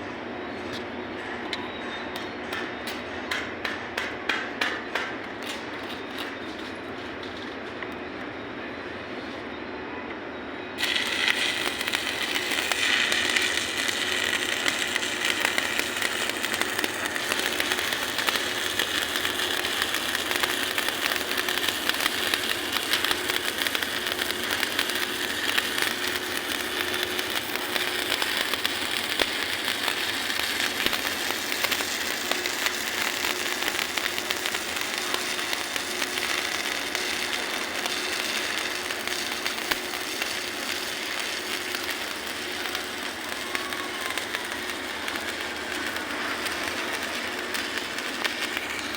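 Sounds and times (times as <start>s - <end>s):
welding arc crackling: 10.8s - 48.9s.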